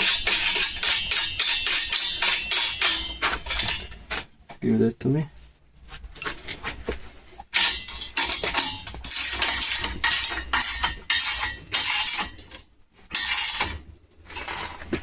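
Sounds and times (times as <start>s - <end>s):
metal tools clinking and scraping: 0.0s - 4.3s, 7.5s - 15.0s.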